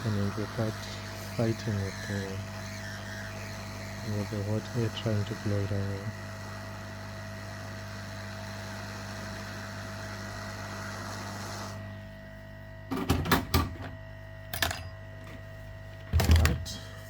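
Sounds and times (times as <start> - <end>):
hot air rework station hissing: 0.0 - 12.0.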